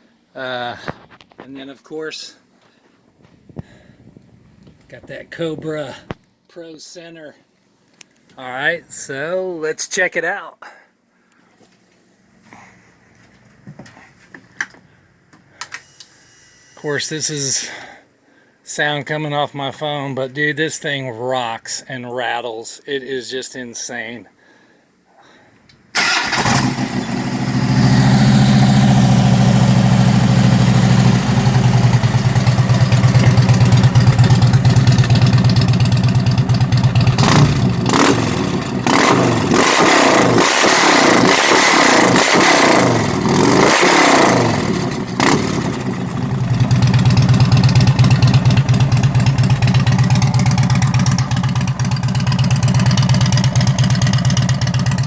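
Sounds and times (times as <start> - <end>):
motorcycle engine idling and revving: 26.0 - 55.0.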